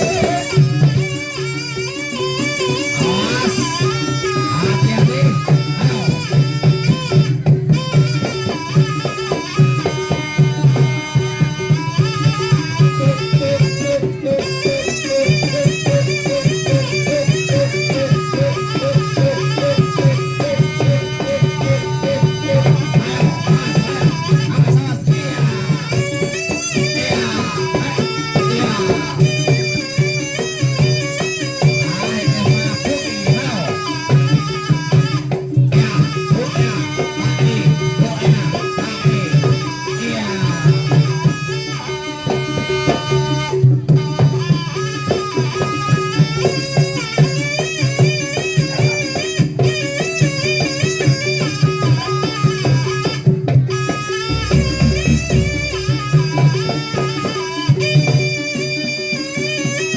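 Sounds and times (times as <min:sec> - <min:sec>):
ornamented folk melody: 0:48.8 - 0:59.8.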